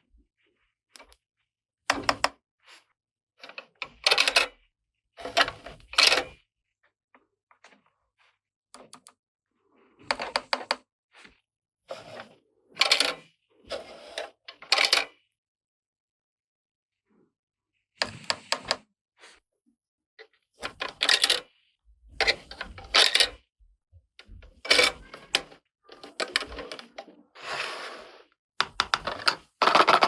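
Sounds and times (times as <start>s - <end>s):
plastic toy pieces clattering: 28.8s - 30.0s.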